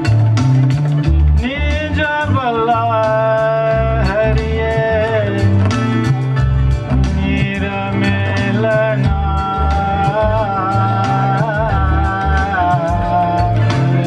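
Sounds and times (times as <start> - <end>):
tabla drum beat: 0.0 - 14.0.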